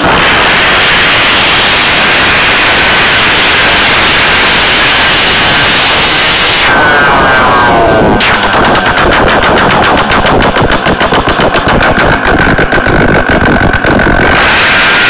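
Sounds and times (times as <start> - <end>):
moped engine revving: 4.7 - 15.0.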